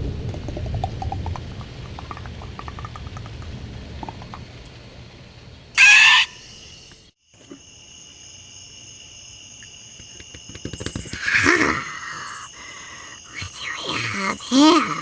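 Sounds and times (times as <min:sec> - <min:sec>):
crickets trilling: 0:00.0 - 0:15.0
loud shrill cry: 0:05.8 - 0:06.5.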